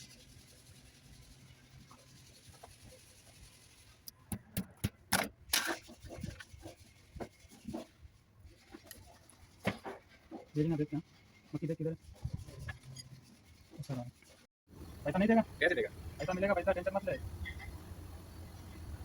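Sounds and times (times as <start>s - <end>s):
sharp clicks and knocks: 4.0s - 7.9s.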